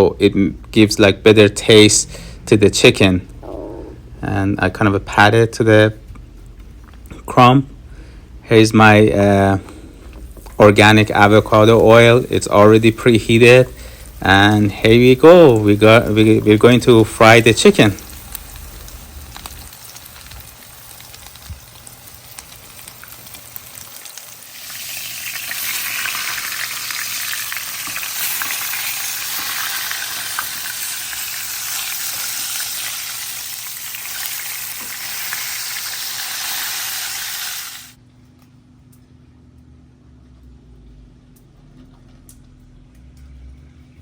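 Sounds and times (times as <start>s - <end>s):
chicken sizzling in oil: 15.1s - 38.0s.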